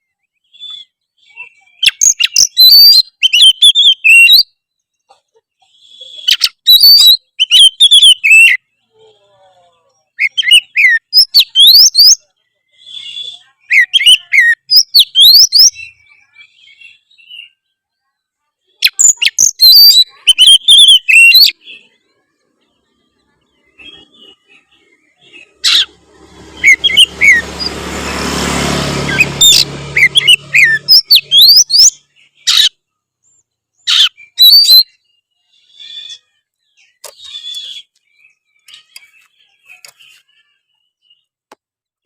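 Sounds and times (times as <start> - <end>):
bird whistles and chirps: 0.3 - 4.6, 5.7 - 8.7, 10.1 - 17.7, 18.8 - 22.0, 23.5 - 27.7, 29.1 - 32.8, 33.8 - 41.3.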